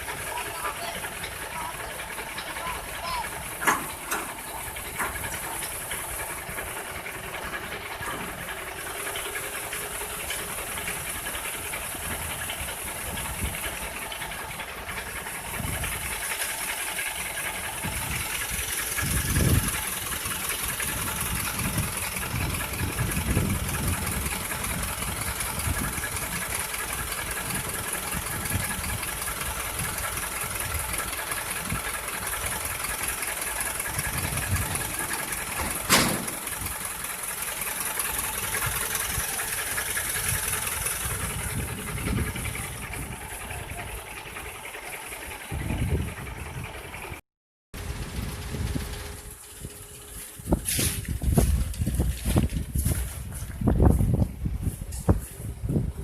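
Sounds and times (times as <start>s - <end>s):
vehicle engine running: 0.0s - 47.2s, 47.8s - 56.0s
low thumps: 34.5s - 36.8s
sharp knock: 35.6s - 36.5s.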